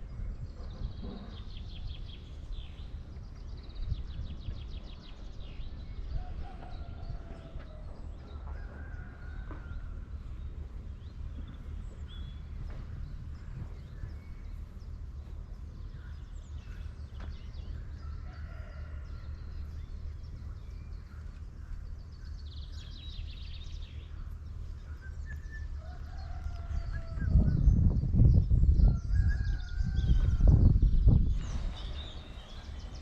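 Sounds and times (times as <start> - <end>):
birds calling and chirping: 0.0 - 33.0
low rumble: 19.0 - 33.0
bird whistles and trill: 24.9 - 25.8.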